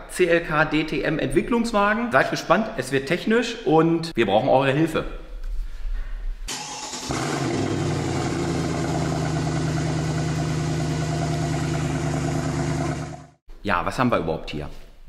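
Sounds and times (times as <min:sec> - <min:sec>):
car engine idling: 0:06.5 - 0:13.4.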